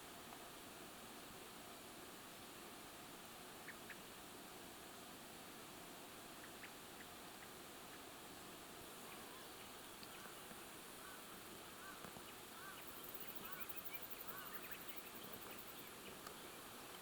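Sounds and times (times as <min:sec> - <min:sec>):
bird calling: 0:09.1 - 0:17.0.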